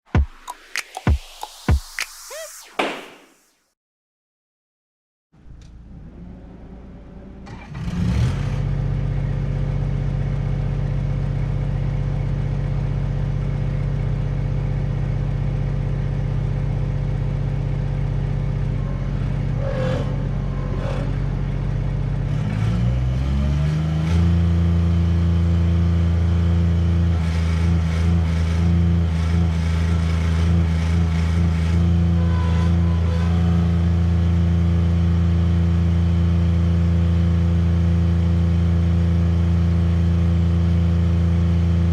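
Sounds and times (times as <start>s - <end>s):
diesel engine starting and idling: 5.4s - 37.5s
diesel engine revving higher: 5.8s - 11.6s, 14.2s - 36.8s.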